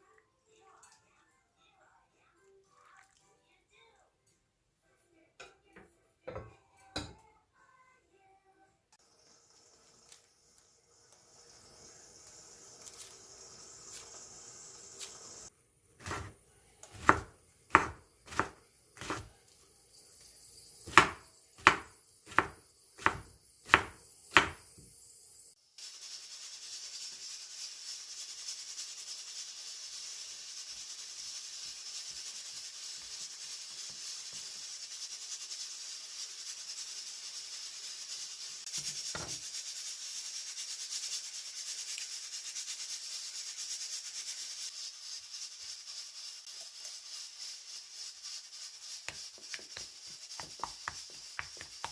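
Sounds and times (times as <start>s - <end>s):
knife chopping on cutting board: 16.0s - 19.3s, 20.9s - 24.8s, 49.1s - 51.9s.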